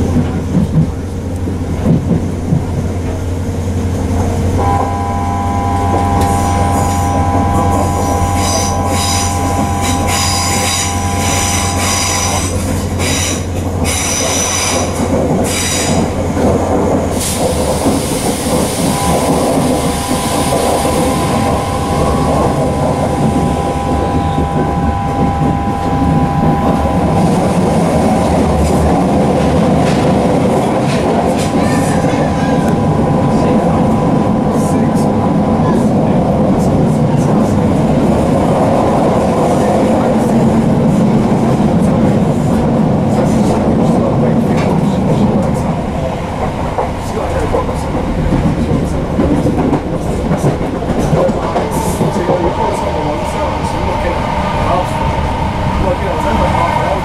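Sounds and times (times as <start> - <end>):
train wheels rumbling on rail: 0.0 - 57.0
electric whine: 4.6 - 12.6, 18.9 - 28.6
pulsing wheel squeal: 4.6 - 16.1, 18.2 - 28.5, 30.5 - 35.9.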